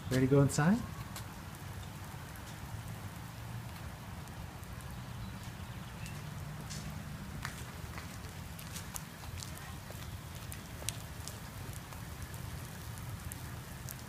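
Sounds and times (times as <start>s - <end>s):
light rain falling: 0.0s - 14.0s
drops ticking on a surface: 5.4s - 14.0s.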